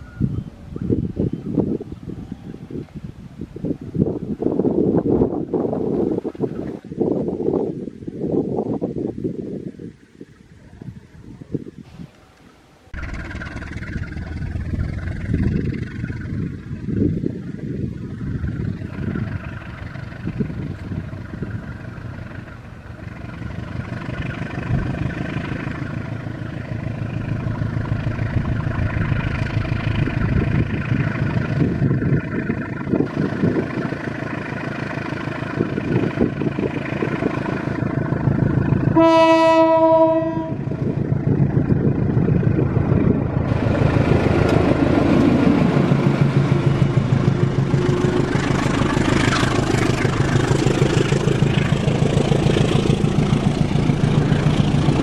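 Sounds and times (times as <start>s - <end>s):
diesel locomotive running: 13.0s - 55.0s
train wheel noise: 13.0s - 55.0s
train horn blast: 38.9s - 41.0s.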